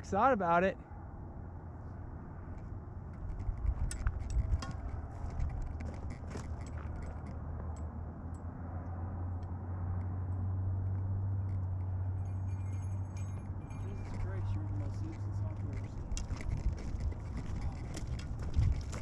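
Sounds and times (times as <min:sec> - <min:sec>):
steady low rumble: 0:01.3 - 0:19.0
small metal bells jingling: 0:11.8 - 0:18.1.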